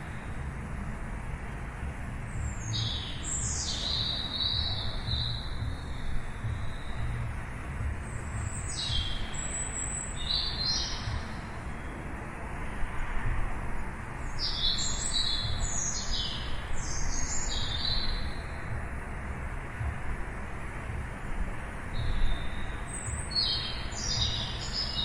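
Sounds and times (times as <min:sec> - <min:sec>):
birds chirping: 0:02.2 - 0:12.2, 0:14.2 - 0:18.9, 0:21.8 - 0:25.0.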